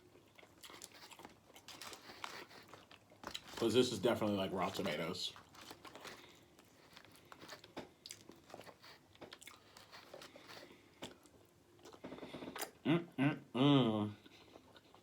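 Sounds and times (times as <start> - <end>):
wet chewing mouth sounds: 0.0 - 3.6, 4.7 - 12.8.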